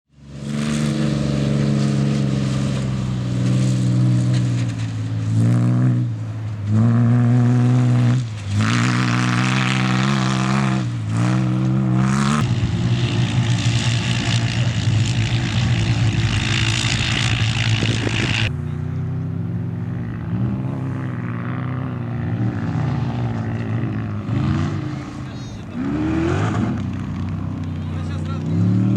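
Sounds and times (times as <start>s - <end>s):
off-road vehicle engines revving: 0.1s - 28.9s.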